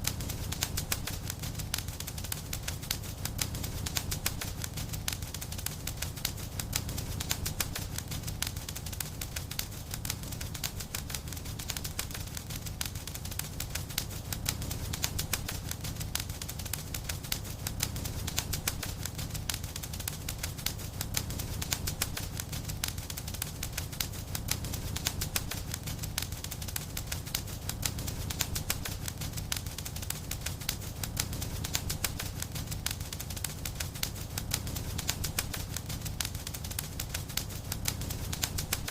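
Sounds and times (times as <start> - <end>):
low rumble of burning: 0.0 - 38.9
wood fire crackling: 0.0 - 38.9.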